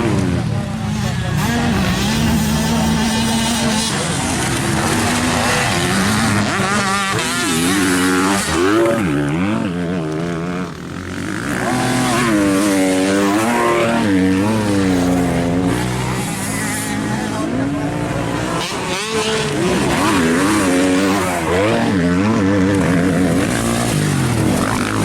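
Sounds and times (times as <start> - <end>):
motocross bikes revving: 0.0 - 25.0.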